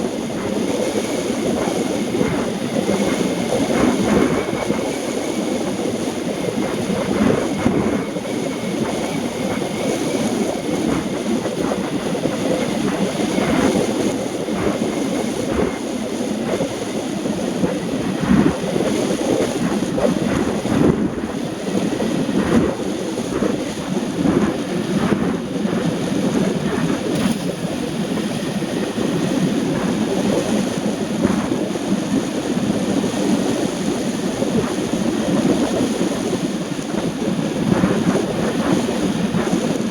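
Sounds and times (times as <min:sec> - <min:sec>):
vehicle on wet road: 0:25.9 - 0:31.9.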